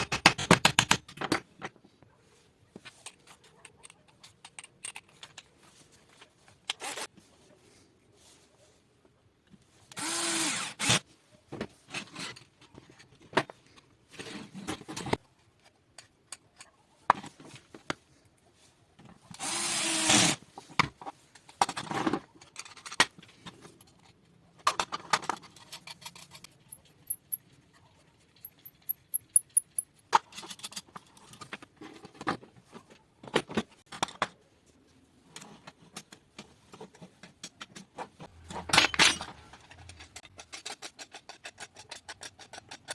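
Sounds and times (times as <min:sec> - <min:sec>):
hand tools clicking and scraping: 0:19.1 - 0:27.6, 0:35.3 - 0:42.9.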